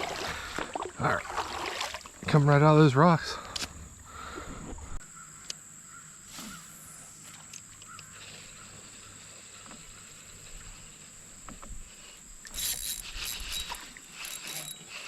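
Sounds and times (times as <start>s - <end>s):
water splashing: 0.0s - 2.5s
insects trilling: 0.0s - 15.0s.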